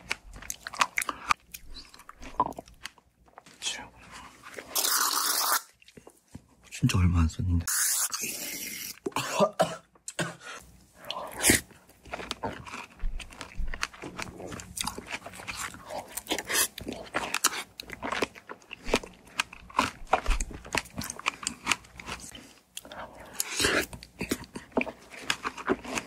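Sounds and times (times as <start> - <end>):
chewing with mouth clicks: 0.0 - 5.0, 11.0 - 26.0.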